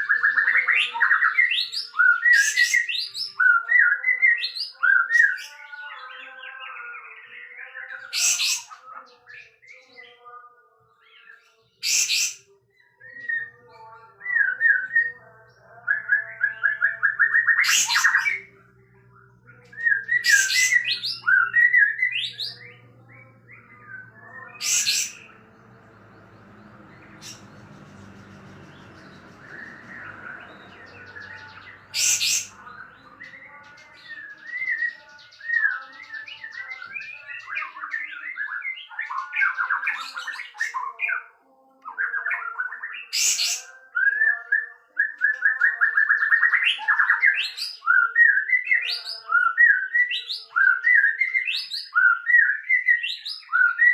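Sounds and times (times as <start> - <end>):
bird chirping song: 0.0 - 53.9
sharp loud bird notes: 19.6 - 41.0.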